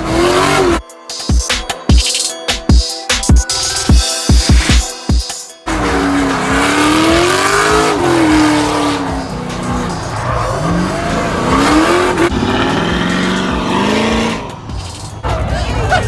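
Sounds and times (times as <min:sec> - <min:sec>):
vehicle engine revving: 0:00.0 - 0:00.8, 0:05.7 - 0:16.0.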